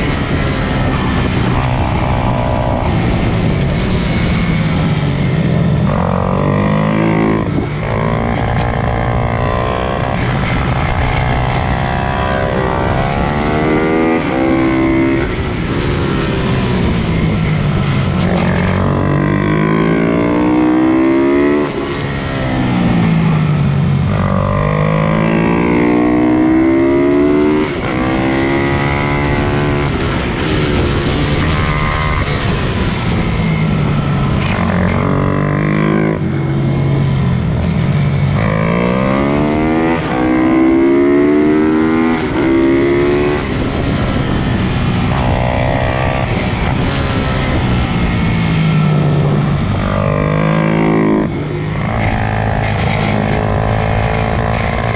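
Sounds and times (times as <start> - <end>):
pit bike engines revving: 0.0 - 22.0, 37.8 - 54.9.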